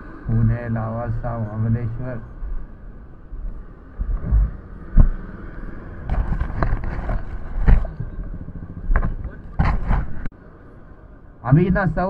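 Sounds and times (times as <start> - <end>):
road noise rumble: 0.0 - 12.0
motorcycle engine running: 3.4 - 10.3
dull thumps: 4.0 - 5.2, 6.1 - 10.3.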